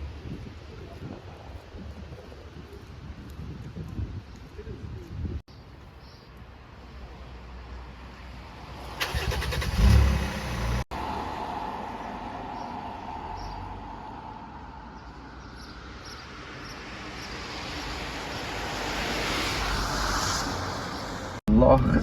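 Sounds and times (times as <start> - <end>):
bus running on the road: 8.2 - 14.4.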